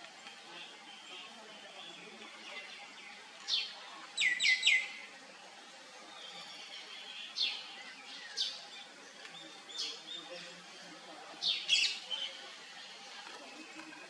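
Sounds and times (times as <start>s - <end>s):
birds chirping: 0.2s - 14.0s.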